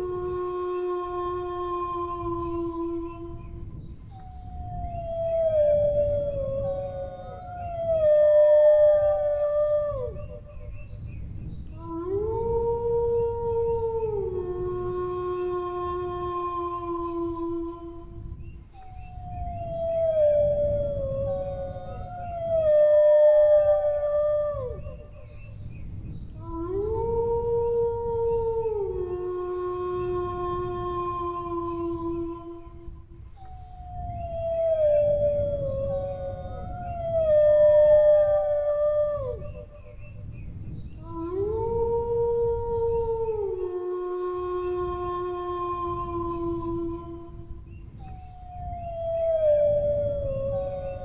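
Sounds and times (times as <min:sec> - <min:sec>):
higher dog howl: 0:00.0 - 0:03.8, 0:11.7 - 0:18.3, 0:19.2 - 0:25.5, 0:26.4 - 0:33.1, 0:33.8 - 0:40.0, 0:40.9 - 0:51.0
low background rumble: 0:00.0 - 0:51.0
dog howling: 0:19.1 - 0:25.4, 0:26.4 - 0:39.8, 0:41.0 - 0:51.0
dogs howling: 0:41.0 - 0:51.0.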